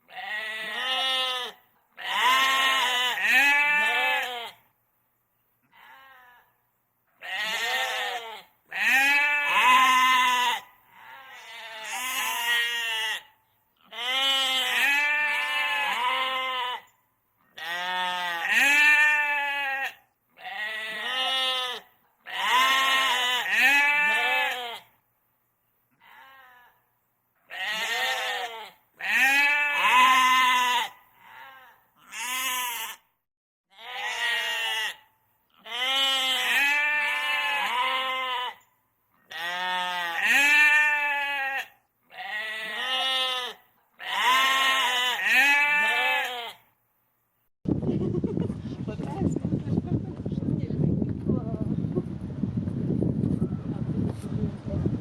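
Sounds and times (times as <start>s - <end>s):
goat or sheep bleating: 0.1s - 4.6s, 5.7s - 6.6s, 7.2s - 16.9s, 17.5s - 24.9s, 25.9s - 26.8s, 27.5s - 33.1s, 33.7s - 46.7s.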